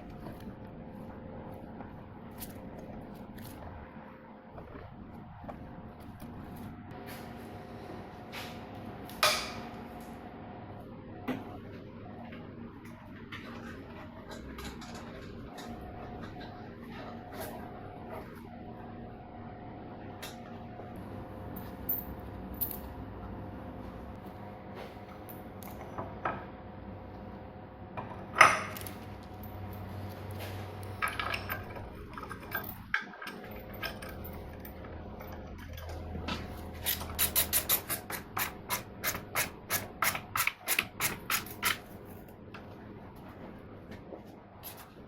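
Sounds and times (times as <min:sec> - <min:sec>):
metal tools clicking and knocking: 0:31.0 - 0:36.0.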